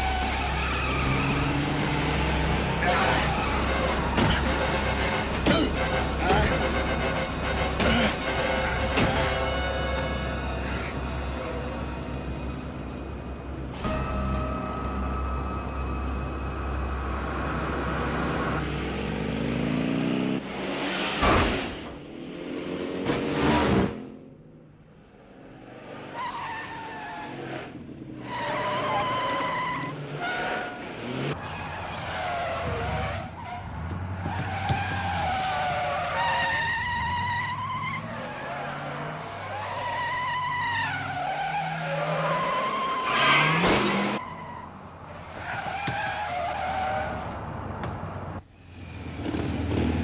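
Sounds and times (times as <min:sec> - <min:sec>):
car tyres squealing: 0:00.0 - 0:10.9, 0:26.0 - 0:48.0
engines revving: 0:00.0 - 0:11.4, 0:16.6 - 0:50.0.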